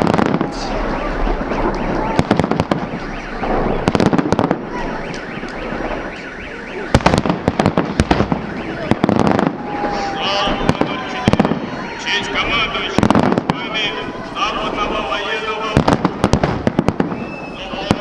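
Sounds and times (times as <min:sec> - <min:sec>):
fireworks bangs and crackles: 0:00.0 - 0:18.0
faint electronic alarm tone: 0:04.6 - 0:07.0.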